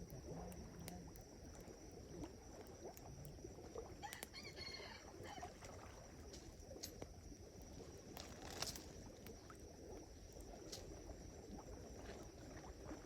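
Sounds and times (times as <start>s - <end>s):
campfire crackling: 6.1s - 11.7s.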